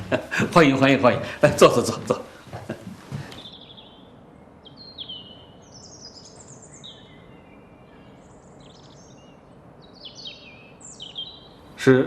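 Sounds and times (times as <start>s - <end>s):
faint steady hiss: 0.0s - 9.9s, 10.7s - 12.0s
small birds chirping: 0.0s - 12.0s.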